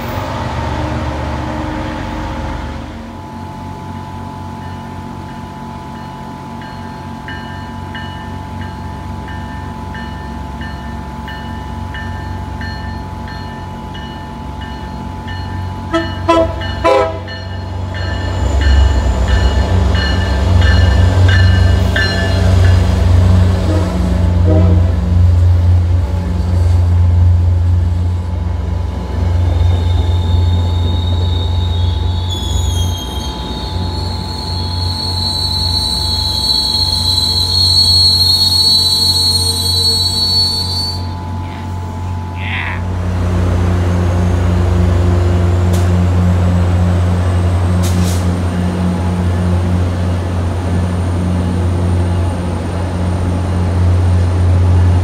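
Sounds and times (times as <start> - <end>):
train bell ringing: 4.4 - 23.8, 33.0 - 42.8
train horn blasts: 15.8 - 17.5, 23.4 - 25.4
high wheel squeal: 29.4 - 41.7.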